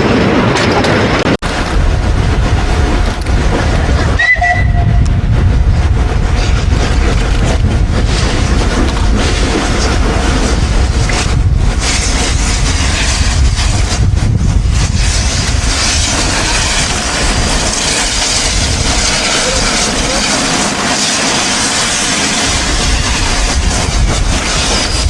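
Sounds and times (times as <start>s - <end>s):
heavy rumble: 0.0s - 25.0s
steam train rushing: 0.0s - 25.0s
steam hiss: 10.5s - 25.0s.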